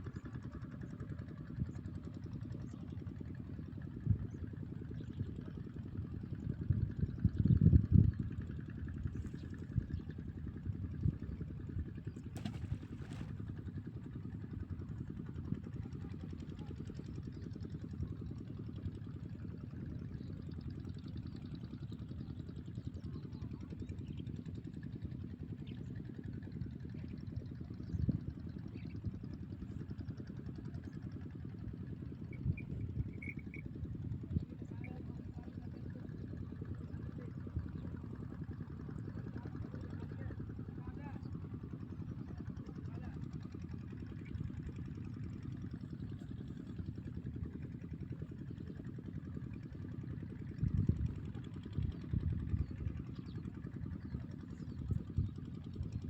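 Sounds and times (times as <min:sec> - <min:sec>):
wind buffeting the microphone: 0:06.4 - 0:11.8.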